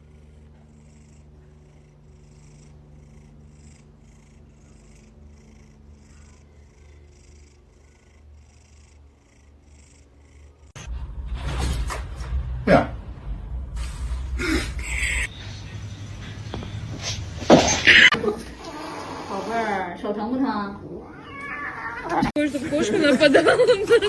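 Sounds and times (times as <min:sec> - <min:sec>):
cat purring: 0:00.0 - 0:19.7.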